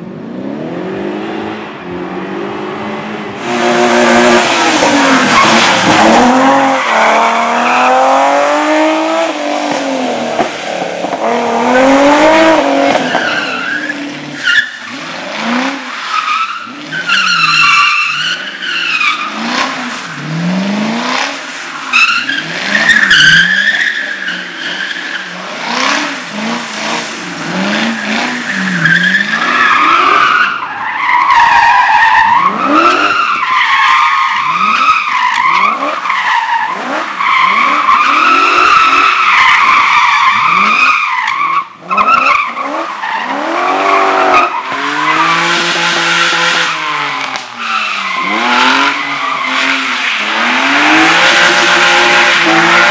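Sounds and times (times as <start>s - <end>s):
car engine revving: 0.0s - 30.4s, 34.4s - 52.9s.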